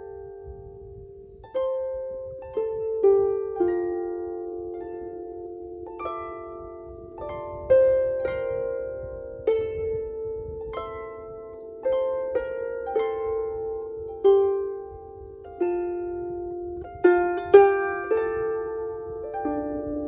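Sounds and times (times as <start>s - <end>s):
harp notes plucked slowly: 0.0s - 20.0s.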